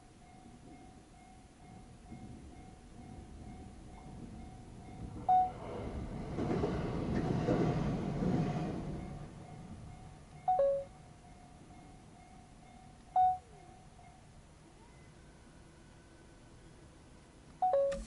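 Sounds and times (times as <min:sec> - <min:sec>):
crossing warning bell: 0:00.0 - 0:06.1, 0:08.8 - 0:16.6, 0:17.6 - 0:18.0
electric train passing: 0:00.0 - 0:17.8.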